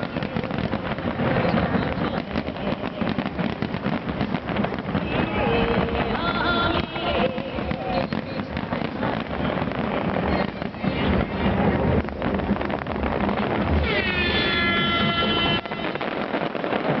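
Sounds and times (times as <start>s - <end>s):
fireworks bursts rumbling: 0.0s - 17.0s
fireworks crackling: 0.0s - 17.0s.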